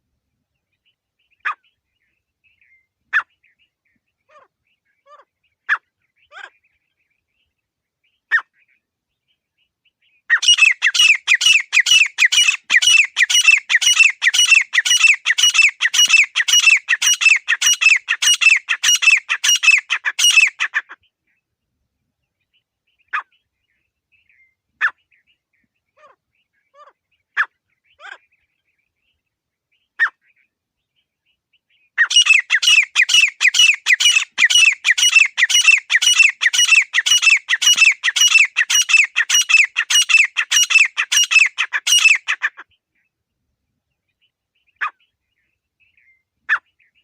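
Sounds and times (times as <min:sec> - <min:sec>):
francolin calling: 0:10.3 - 0:20.8, 0:32.0 - 0:42.5.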